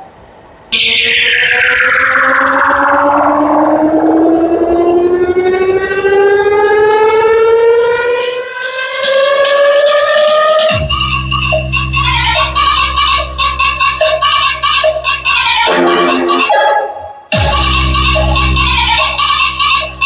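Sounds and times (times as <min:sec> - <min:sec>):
buzzy electronic tone gliding upward: 0:00.7 - 0:10.7.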